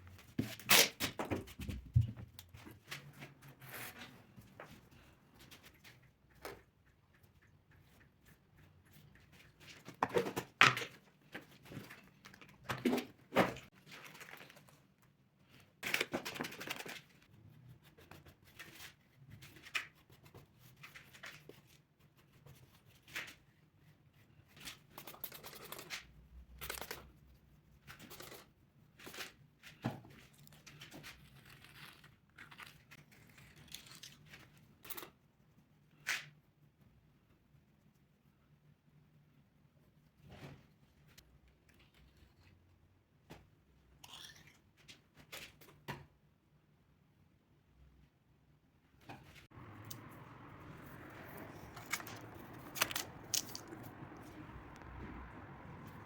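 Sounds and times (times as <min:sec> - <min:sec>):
tearing and crinkling: 0:30.3 - 0:35.1, 0:51.2 - 0:54.3.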